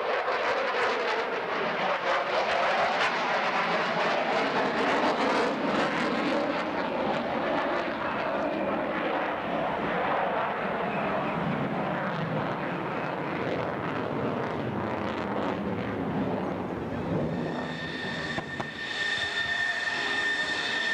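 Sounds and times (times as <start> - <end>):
aircraft engine rushing: 0.2 - 20.9.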